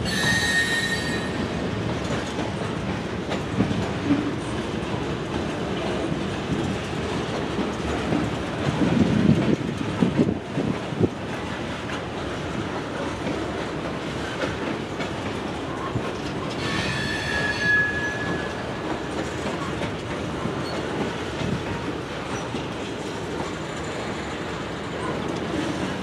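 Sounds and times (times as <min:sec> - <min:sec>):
wheel squealing on rail: 0:00.0 - 0:02.7, 0:15.6 - 0:19.9, 0:20.6 - 0:21.6
freight train rolling past: 0:00.0 - 0:26.0.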